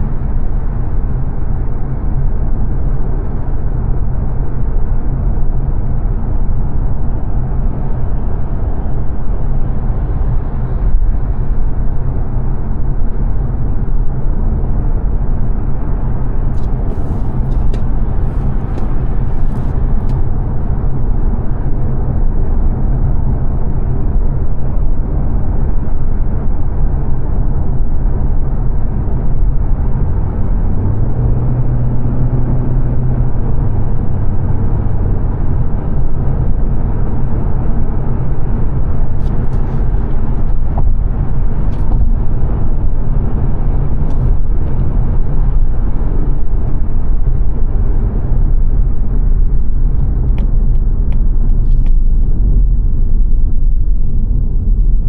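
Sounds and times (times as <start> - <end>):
low engine hum: 0.0 - 55.0
tyre and road rumble: 14.5 - 22.0, 34.3 - 55.0.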